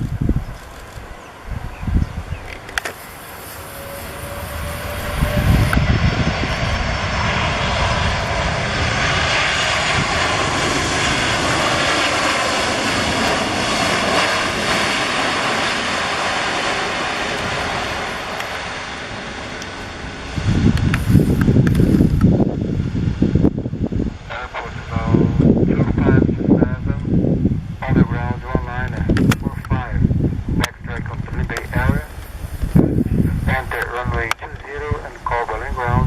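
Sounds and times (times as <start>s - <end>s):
jet airliner passing: 0.0s - 36.0s
faint falling engine whine: 2.8s - 22.4s.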